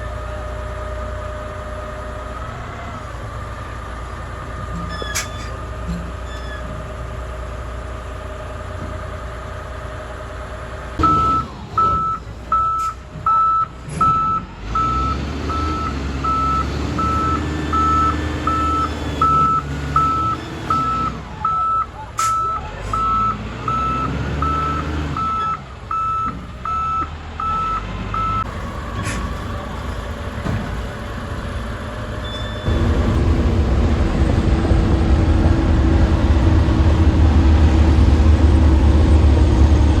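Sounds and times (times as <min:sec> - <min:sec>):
diesel engine running: 0:00.0 - 0:40.0
reversing alarm beeps: 0:11.0 - 0:28.5.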